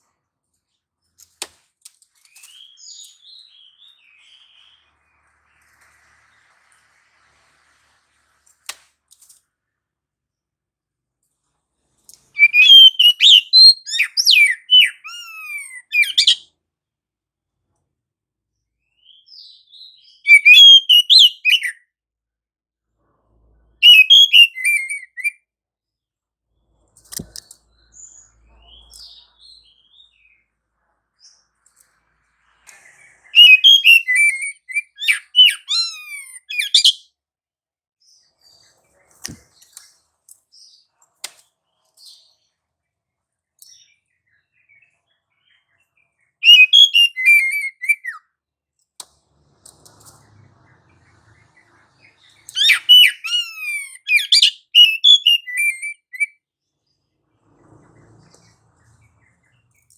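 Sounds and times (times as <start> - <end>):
bird song with whistles and chirps: 2.3 - 6.1, 12.3 - 16.5, 18.8 - 21.9, 23.8 - 25.4, 27.1 - 30.5, 32.6 - 37.2, 43.6 - 48.4, 50.2 - 56.4.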